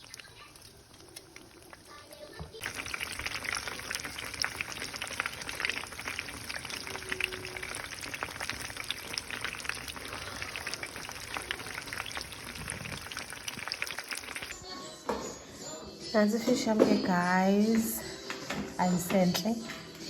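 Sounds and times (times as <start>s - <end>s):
crackling oil spatter: 0.0s - 14.6s
fish sizzling in hot oil: 0.0s - 14.6s.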